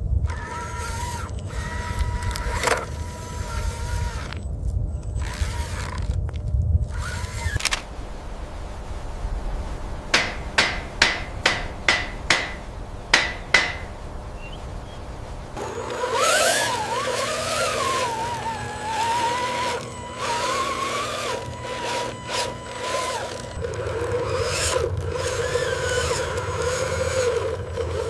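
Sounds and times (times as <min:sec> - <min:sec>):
steady low hum: 0:00.0 - 0:28.0
wavering whine: 0:00.0 - 0:28.0
hammer-like knocks: 0:10.1 - 0:14.2.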